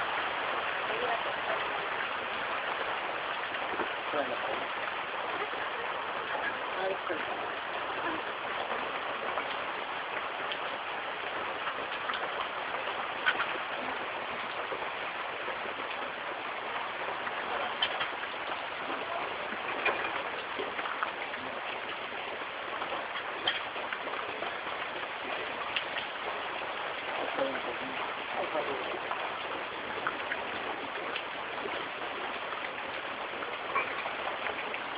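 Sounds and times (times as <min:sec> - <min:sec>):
rain pattering: 0:00.0 - 0:34.9
water drops ticking: 0:11.5 - 0:34.9.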